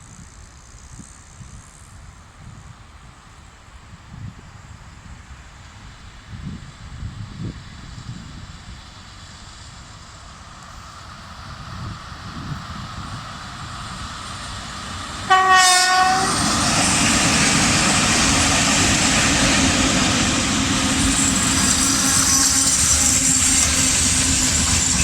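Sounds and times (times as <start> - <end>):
freight train rumbling on rails: 0.1 - 25.0
locomotive horn blast: 15.3 - 16.6.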